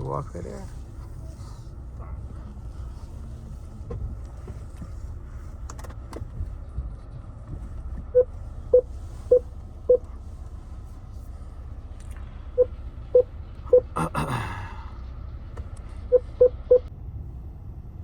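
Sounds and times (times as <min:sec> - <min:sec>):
steady low rumble: 0:00.0 - 0:18.0
short electronic beeps: 0:08.2 - 0:10.0, 0:12.6 - 0:14.0, 0:16.1 - 0:16.9.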